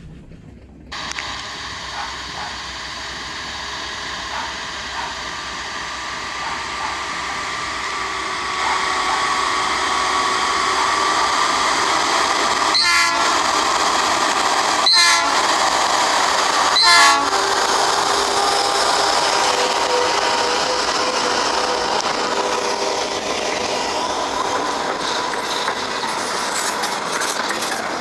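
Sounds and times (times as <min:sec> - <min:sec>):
rail noise of train: 0:00.0 - 0:28.0
horn short blasts: 0:12.6 - 0:13.6, 0:14.8 - 0:15.5, 0:16.7 - 0:17.6.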